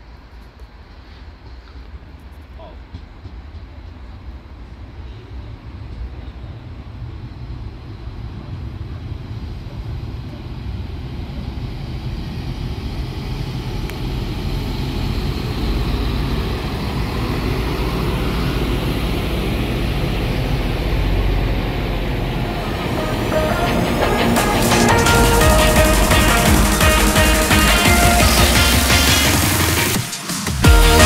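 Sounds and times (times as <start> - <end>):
wheel-on-rail noise: 0.0 - 31.0
diesel engine rumble: 5.5 - 30.0.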